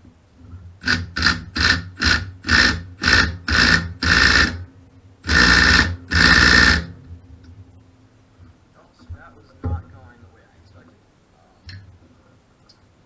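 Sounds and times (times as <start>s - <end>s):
impact driver bursts: 0.8s - 7.0s.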